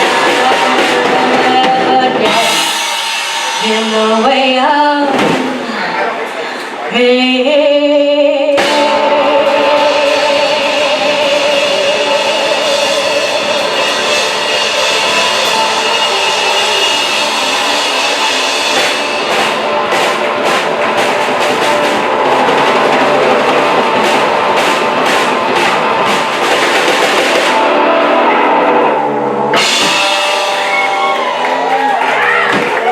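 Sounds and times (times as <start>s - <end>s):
distorted guitar: 0.0s - 32.9s
drums: 0.0s - 32.9s
cymbal hits: 2.4s - 4.3s.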